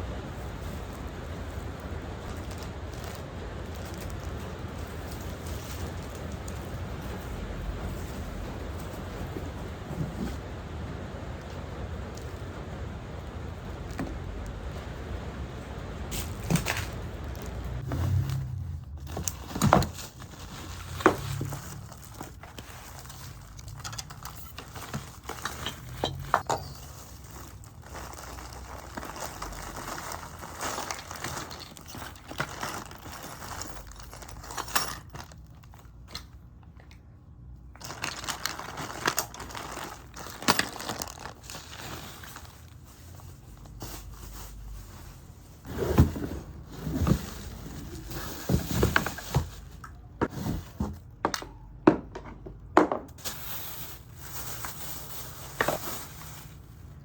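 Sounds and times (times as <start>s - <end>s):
packaging crinkling and tearing: 26.6s - 34.5s, 37.8s - 42.8s.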